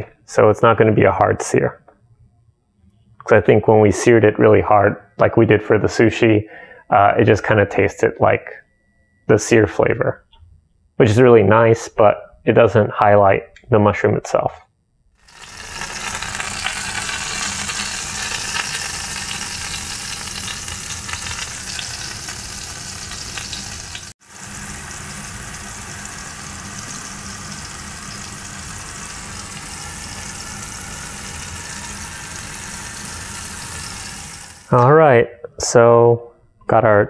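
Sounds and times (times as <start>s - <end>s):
oil sizzling in a frying pan: 15.2s - 34.8s.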